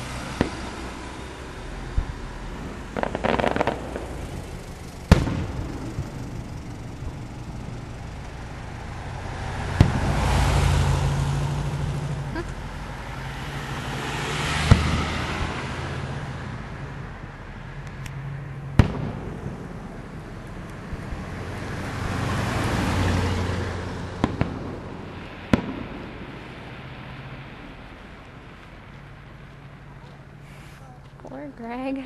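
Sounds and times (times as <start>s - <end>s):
firework booms: 0.0s - 10.9s, 11.6s - 16.4s, 18.7s - 21.3s, 23.8s - 30.2s
firework crackle: 0.0s - 16.4s, 22.2s - 31.2s
cars passing on road: 0.0s - 32.0s.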